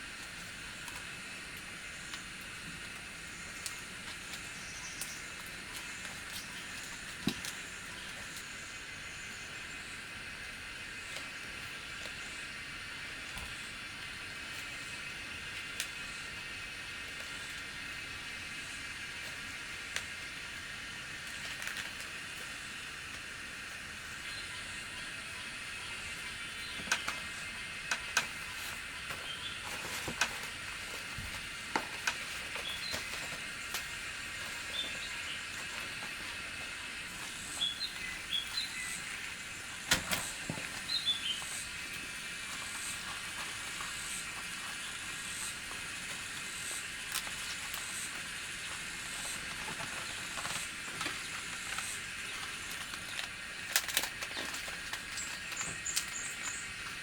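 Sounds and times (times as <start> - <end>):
steady high hiss: 0.0 - 57.0
bird-like chirps: 32.1 - 42.0.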